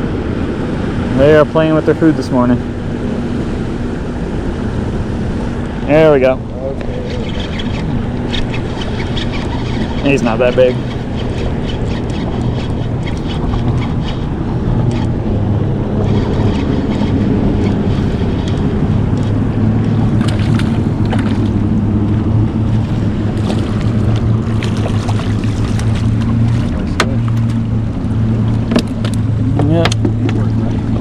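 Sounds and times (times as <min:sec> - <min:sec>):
boat motor humming: 0:00.0 - 0:31.0
water against hull: 0:00.0 - 0:31.0
wind on microphone: 0:00.0 - 0:31.0
light clicks and knocks: 0:28.6 - 0:30.5.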